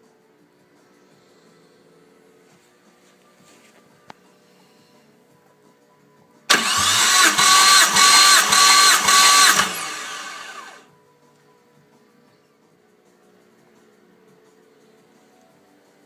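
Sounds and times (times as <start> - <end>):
starter motor cranking engine: 6.5 - 10.8.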